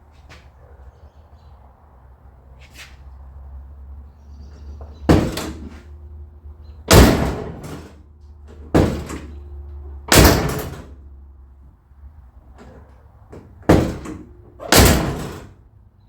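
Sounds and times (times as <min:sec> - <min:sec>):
vehicle door slamming: 0:05.0 - 0:05.9, 0:06.9 - 0:09.4, 0:10.1 - 0:11.0, 0:12.6 - 0:15.6.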